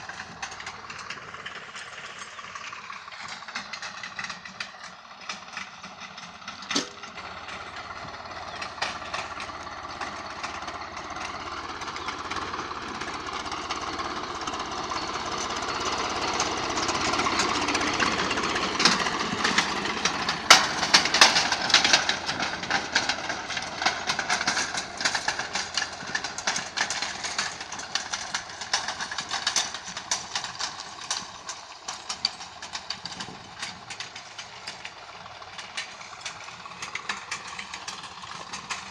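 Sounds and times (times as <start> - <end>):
tiller clattering knocks: 0.0 - 38.9
tractor diesel engine under load: 0.0 - 38.9.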